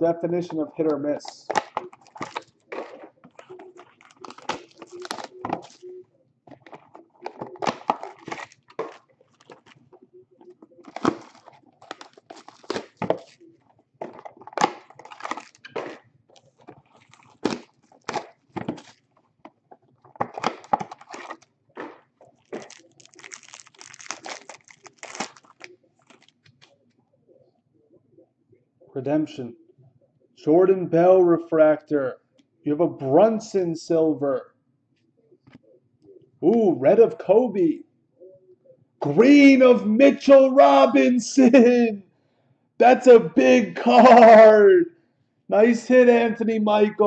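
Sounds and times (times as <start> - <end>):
packaging torn and crinkled: 1.5 - 5.8, 10.8 - 13.4, 14.0 - 19.0, 20.2 - 26.7.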